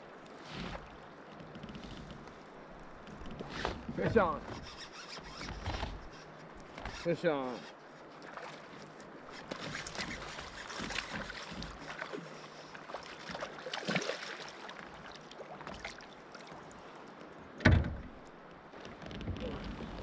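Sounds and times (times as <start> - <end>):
clicks and scrapes of fishing gear: 0.3 - 2.3, 3.1 - 14.0
deep thump against kayak: 17.6 - 18.2.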